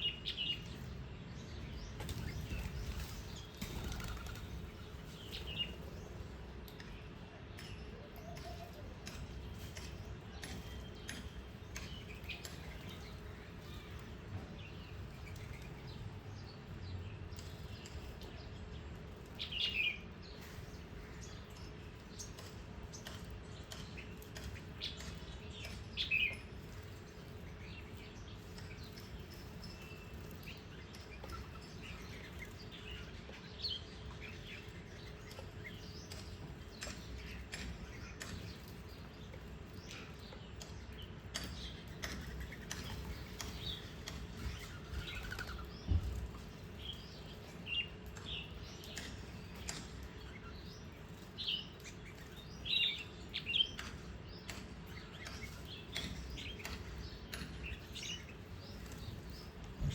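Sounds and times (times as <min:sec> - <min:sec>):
low background hum: 0:00.0 - 0:59.9
small birds chirping: 0:00.0 - 0:59.9.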